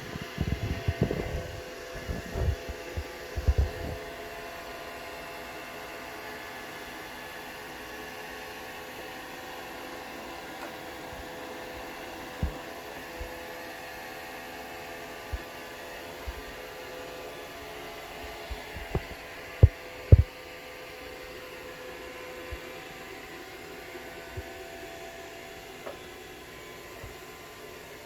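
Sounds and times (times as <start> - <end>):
robot vacuum motor hum: 0.0 - 5.6.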